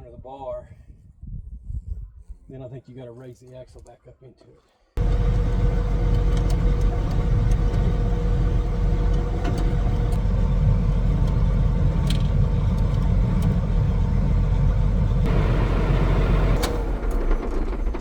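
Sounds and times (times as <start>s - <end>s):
tractor engine running: 5.0s - 18.0s.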